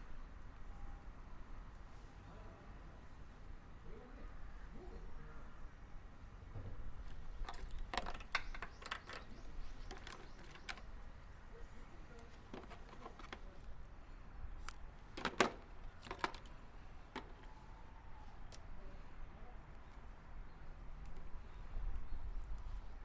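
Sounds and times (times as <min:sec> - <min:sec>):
light clicks of hands on wiring: 0:14.6 - 0:18.7.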